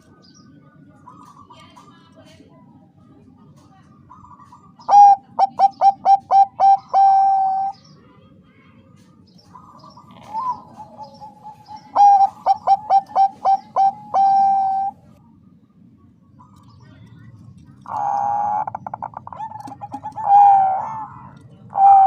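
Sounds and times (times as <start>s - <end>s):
dove cooing song: 0.0s - 1.9s, 4.0s - 7.8s, 9.4s - 15.2s, 17.8s - 22.0s.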